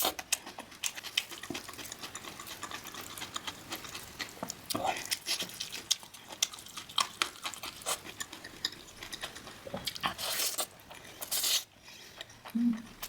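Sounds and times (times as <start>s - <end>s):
food crunching: 0.0s - 13.0s.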